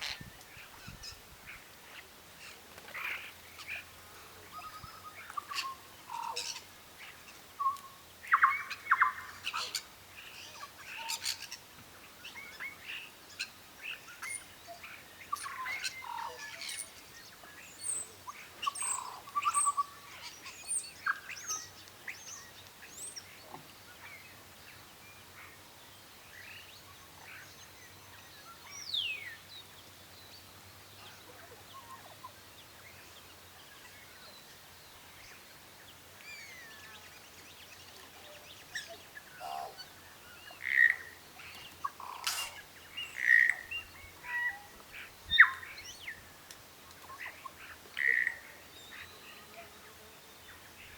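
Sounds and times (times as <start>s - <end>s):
birds chirping and calling: 17.8s - 21.7s, 37.9s - 46.2s, 47.0s - 49.2s.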